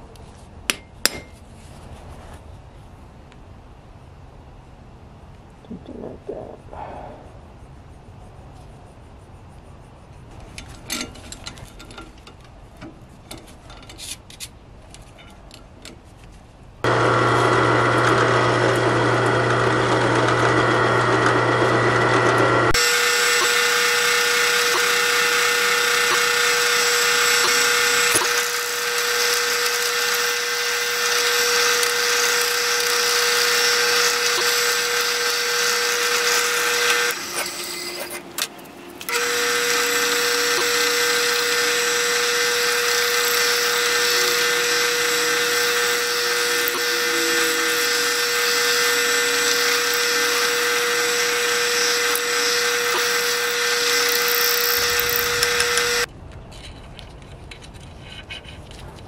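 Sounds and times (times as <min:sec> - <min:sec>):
hissing power tool whine: 0:16.8 - 0:56.1
humming machine: 0:16.8 - 0:56.1.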